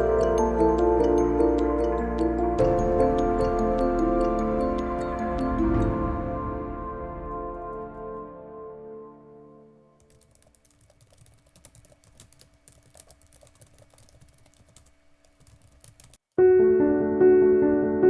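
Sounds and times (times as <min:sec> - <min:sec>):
soft background music: 0:00.0 - 0:10.3, 0:16.4 - 0:18.0
piano music: 0:00.0 - 0:10.5, 0:16.4 - 0:18.0
keyboard typing clicks: 0:10.0 - 0:16.2.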